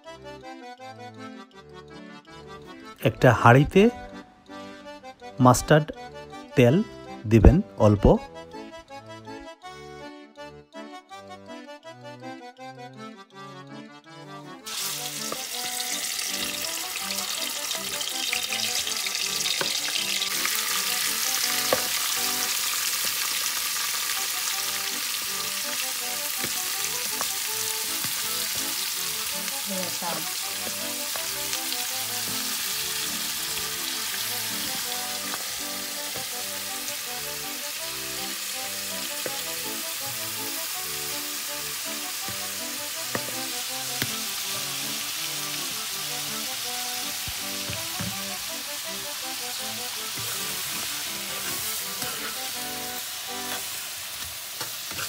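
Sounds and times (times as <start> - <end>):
prawns sizzling in oil: 14.7 - 55.0.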